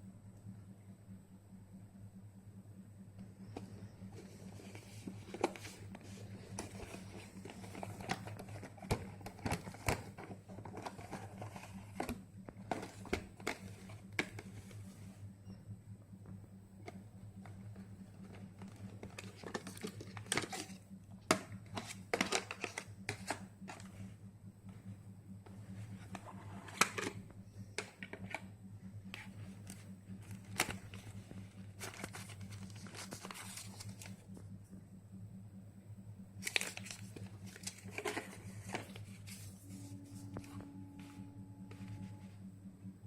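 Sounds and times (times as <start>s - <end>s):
steady low hum: 0.0s - 43.0s
packaging crinkling and rustling: 4.2s - 14.9s, 17.4s - 23.9s, 29.2s - 34.2s, 36.4s - 40.5s.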